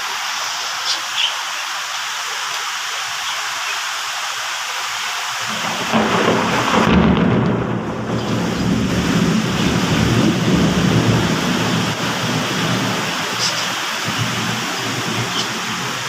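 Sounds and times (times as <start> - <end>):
heavy rain hissing: 0.0 - 16.0
low rumble of thunder: 5.5 - 13.4.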